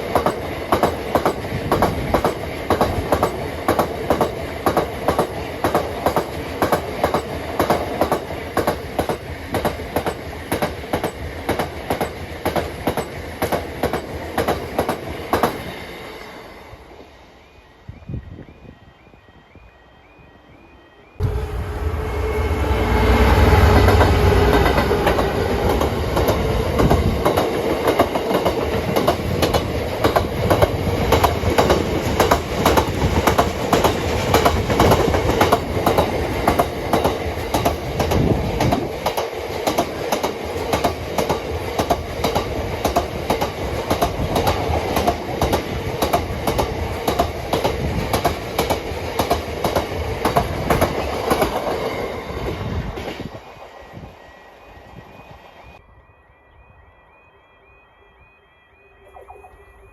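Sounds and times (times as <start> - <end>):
diesel train rumble: 21.2 - 53.4.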